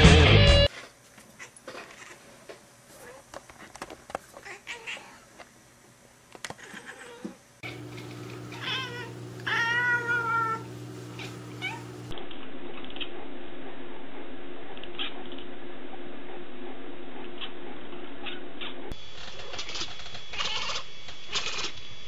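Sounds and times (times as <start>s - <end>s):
cat meowing: 6.6s - 7.4s, 8.5s - 11.9s.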